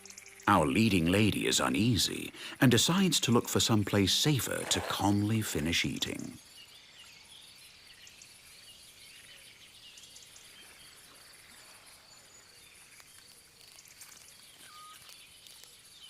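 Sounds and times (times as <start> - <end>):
insects chirping: 0.0 - 16.0
soft faint chirps: 6.1 - 16.0.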